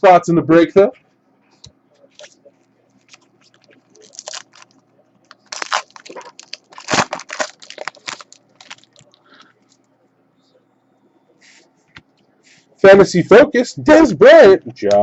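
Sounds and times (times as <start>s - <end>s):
foil wrappers tearing and crinkling: 3.6s - 9.2s.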